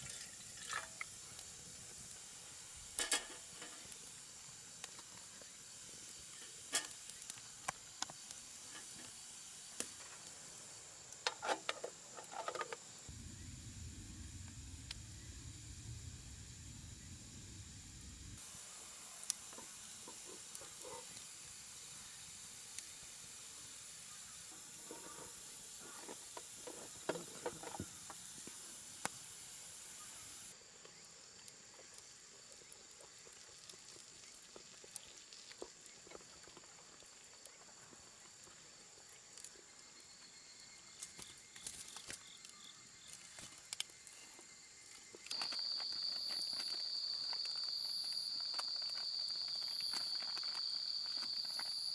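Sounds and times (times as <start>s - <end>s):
small crackles and ticks: 0.0s - 16.1s, 18.0s - 51.9s
high insect trill: 38.7s - 51.9s
high insect drone: 43.9s - 51.9s.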